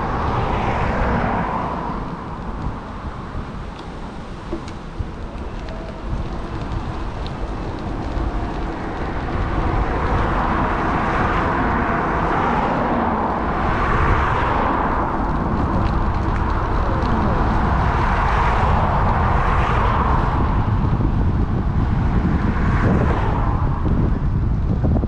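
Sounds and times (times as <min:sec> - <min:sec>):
road and wind noise: 0:00.0 - 0:25.0.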